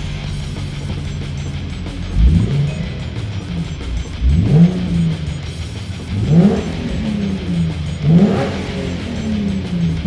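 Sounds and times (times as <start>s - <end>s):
background guitar music: 0.0s - 10.0s
car exhaust revving: 0.0s - 10.0s.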